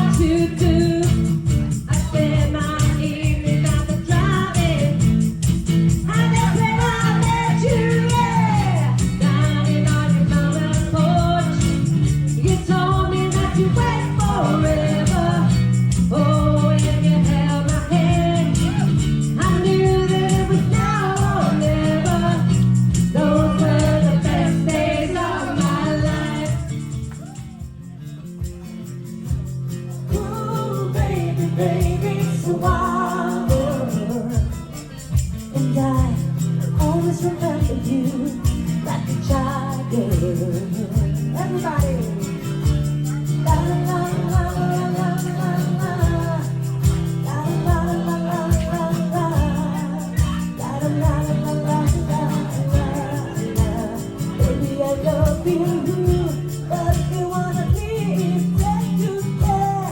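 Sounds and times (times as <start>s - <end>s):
person singing: 0.0s - 5.2s, 6.0s - 27.9s, 29.9s - 59.9s
bass line: 0.0s - 45.2s
acoustic guitar: 0.0s - 59.9s.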